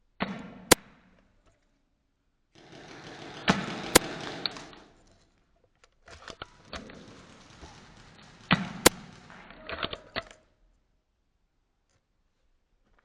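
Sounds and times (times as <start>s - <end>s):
airsoft gun shots: 2.6s - 5.0s, 6.6s - 9.8s
rustling movement: 6.2s - 9.6s.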